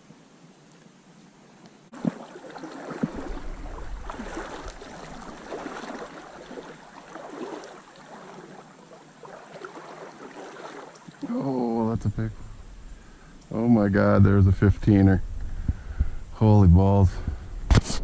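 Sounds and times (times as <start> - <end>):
stream water gurgling: 1.9 - 13.3.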